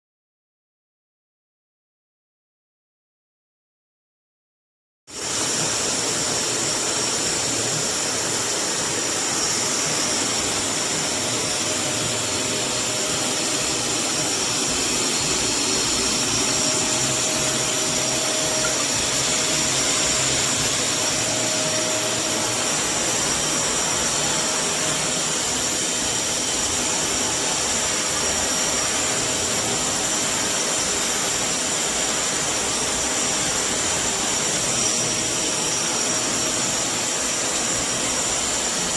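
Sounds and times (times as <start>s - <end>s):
shop vacuum running: 5.1s - 38.9s.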